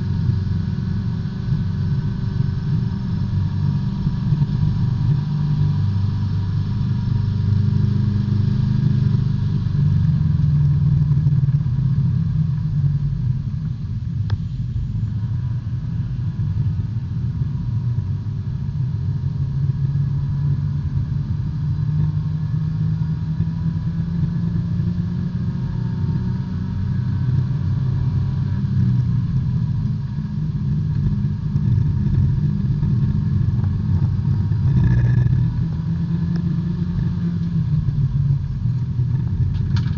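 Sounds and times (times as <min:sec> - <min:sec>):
race car engine running steadily: 0:00.0 - 0:39.9.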